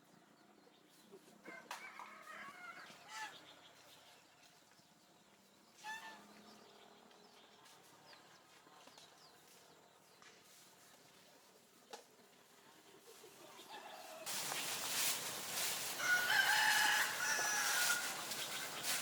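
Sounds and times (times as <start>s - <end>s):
chickens calling: 12.8s - 19.0s.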